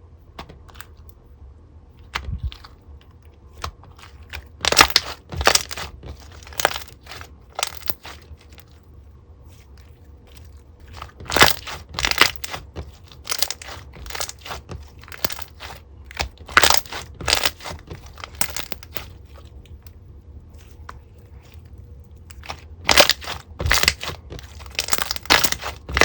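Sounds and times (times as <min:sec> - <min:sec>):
slime crackling pops: 0:22.9 - 0:26.0.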